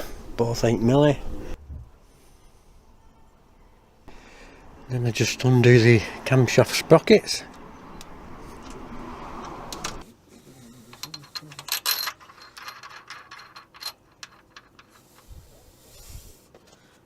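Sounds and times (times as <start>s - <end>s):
metal tools clicking: 10.8s - 15.3s.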